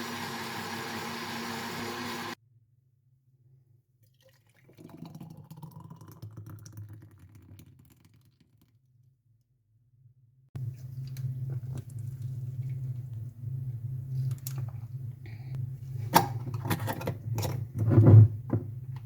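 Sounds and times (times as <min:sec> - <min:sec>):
liquid pouring into a glass: 0:04.1 - 0:08.4.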